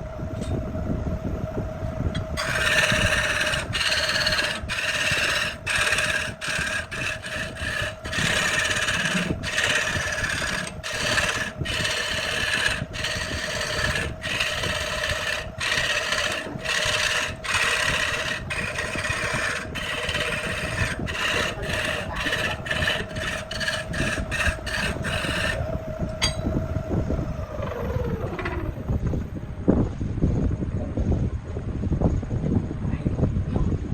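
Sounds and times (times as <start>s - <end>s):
motor whine: 0.0s - 29.4s
power tool rasping wood: 2.2s - 29.3s.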